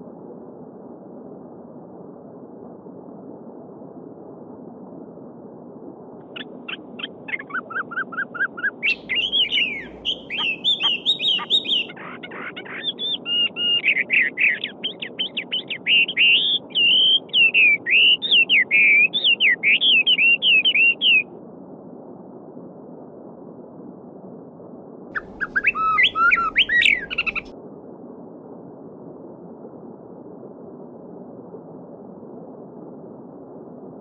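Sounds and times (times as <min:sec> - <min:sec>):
songbird singing: 0:06.3 - 0:21.2, 0:25.2 - 0:27.5
babbling stream: 0:08.8 - 0:11.9.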